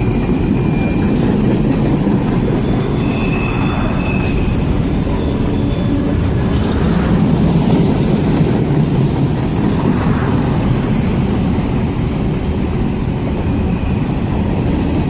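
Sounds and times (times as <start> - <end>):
train wheels on rails: 0.0 - 15.0
faint wheel squeal: 2.6 - 6.2.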